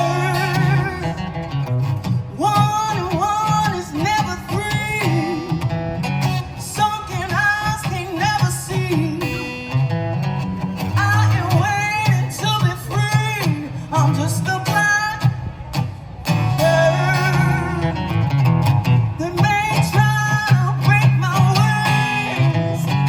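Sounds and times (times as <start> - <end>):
woman singing: 0.0 - 1.2, 2.4 - 5.5, 6.6 - 9.4, 11.0 - 15.4, 16.6 - 17.9, 19.2 - 22.6
guitar accompaniment: 0.0 - 23.0.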